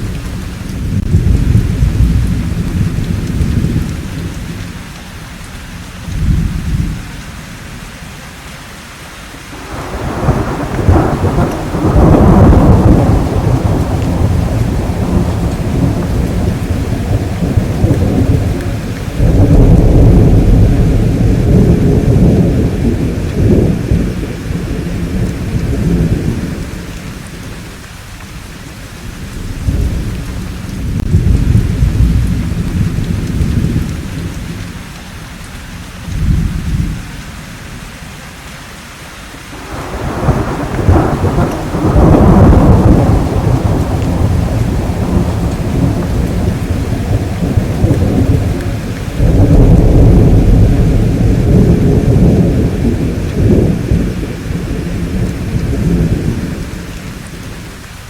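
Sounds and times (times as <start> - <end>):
rolling thunder: 0.0 - 4.8, 9.6 - 37.6, 39.6 - 57.9
steady rain: 0.0 - 58.0
sharp thunder crack: 9.6 - 26.9, 39.6 - 56.9.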